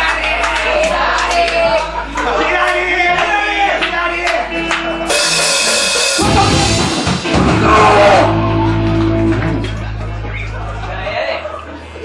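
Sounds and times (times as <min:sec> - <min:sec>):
cymbal crash: 0:05.1 - 0:07.7
heavy drum hits: 0:05.1 - 0:10.8
held low bass note: 0:06.2 - 0:12.0.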